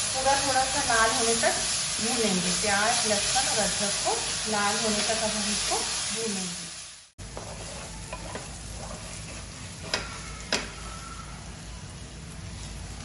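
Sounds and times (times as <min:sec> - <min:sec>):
onion sizzling in oil: 0:00.0 - 0:13.0
spatula stirring and scraping: 0:07.2 - 0:13.0.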